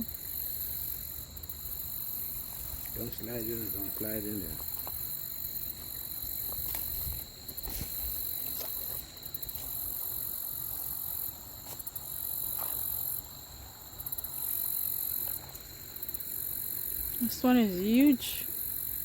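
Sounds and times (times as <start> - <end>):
insect chirring in bouts: 0.0 - 19.0
insects ringing: 0.0 - 19.0.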